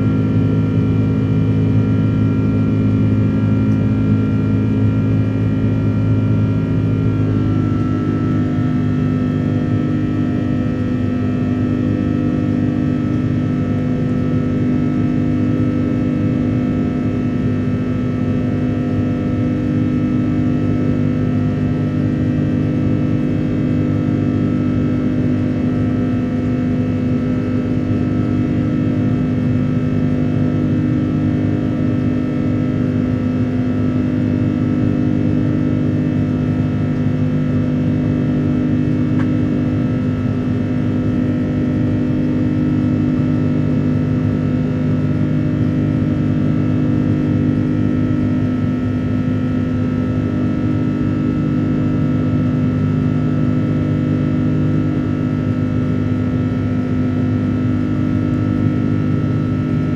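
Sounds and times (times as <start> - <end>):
airplane engine drone: 0.0 - 59.9
low rumble of airflow: 0.0 - 59.9.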